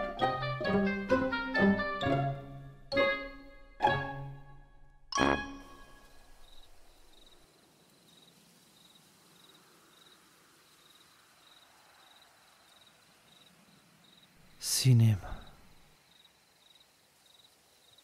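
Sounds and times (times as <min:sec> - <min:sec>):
crickets chirping: 0:05.4 - 0:18.0.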